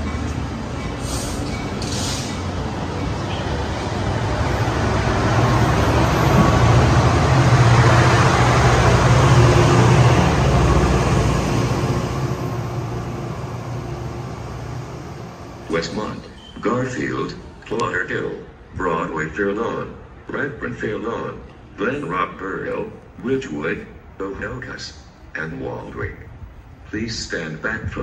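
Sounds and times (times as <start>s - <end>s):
train wheels rumbling on rails: 0.0s - 17.6s
locomotive engine drone: 0.0s - 26.9s.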